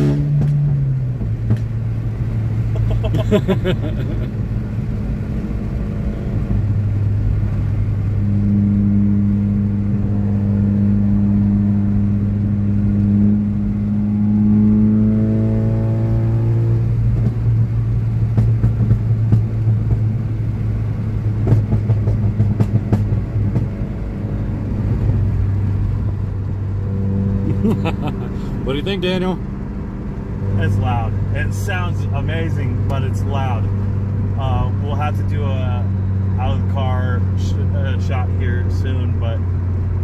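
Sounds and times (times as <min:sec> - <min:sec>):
loud car exhaust drone: 0:00.0 - 0:40.0
crackling exhaust pops: 0:00.4 - 0:01.8, 0:17.0 - 0:20.4, 0:21.2 - 0:23.9.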